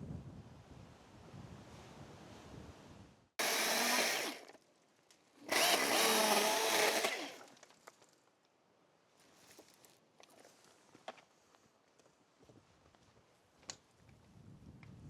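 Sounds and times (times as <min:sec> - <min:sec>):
chainsaw engine revving: 0:03.4 - 0:04.6, 0:05.4 - 0:07.5.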